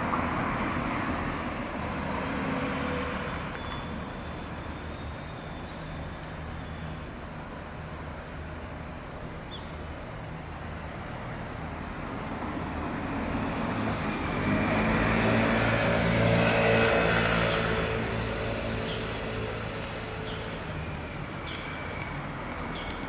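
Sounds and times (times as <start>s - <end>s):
vehicle engine passing: 13.2s - 20.5s.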